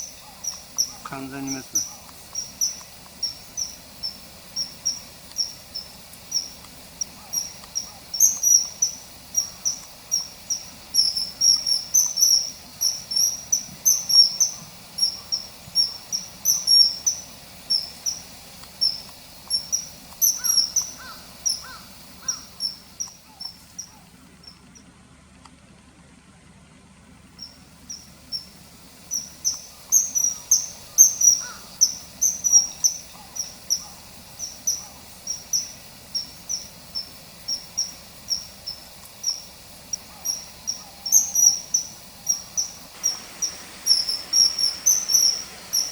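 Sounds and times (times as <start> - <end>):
kingfisher shrill whistles: 43.4 - 45.9.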